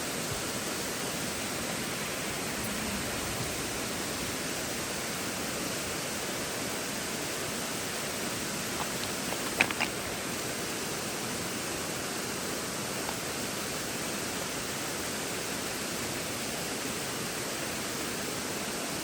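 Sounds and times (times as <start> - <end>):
water rushing over rocks: 0.1 - 14.7.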